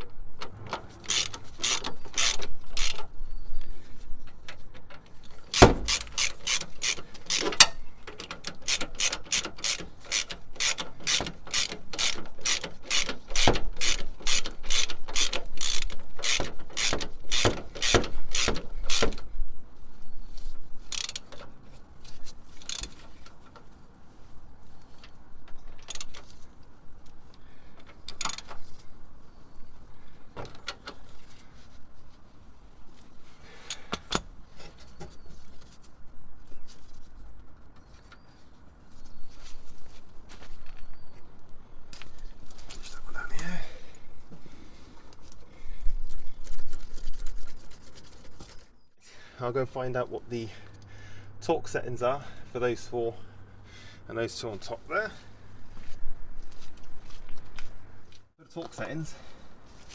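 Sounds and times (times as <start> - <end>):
socket ratchet clicking: 1.0 - 3.1, 5.5 - 19.2.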